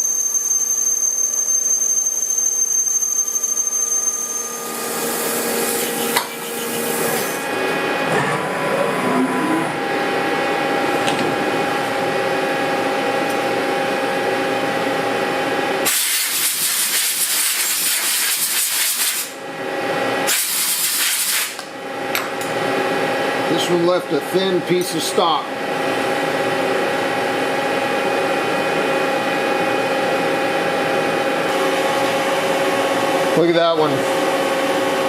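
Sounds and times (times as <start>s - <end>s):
lathe spindle whining: 1.1s - 10.5s.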